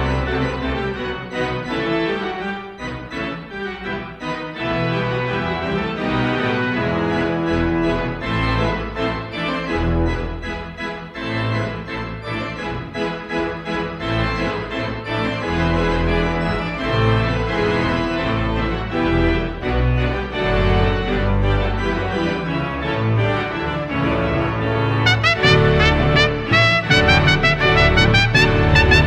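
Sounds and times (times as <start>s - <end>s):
instrumental music with bass line: 6.4s - 29.0s.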